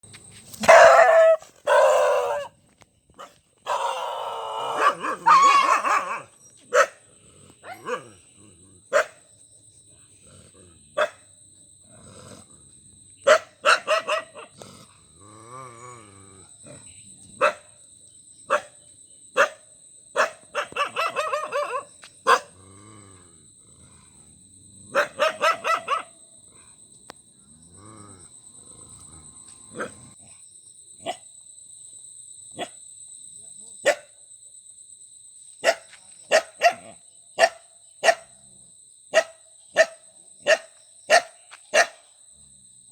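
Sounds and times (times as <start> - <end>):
dog barking: 0.6 - 2.5, 4.6 - 8.2, 8.9 - 9.3, 11.0 - 11.3, 13.2 - 14.6, 17.4 - 17.8, 18.5 - 18.8, 19.4 - 22.6, 24.9 - 26.2, 32.6 - 32.8, 33.8 - 34.1, 35.6 - 38.4, 39.1 - 42.1.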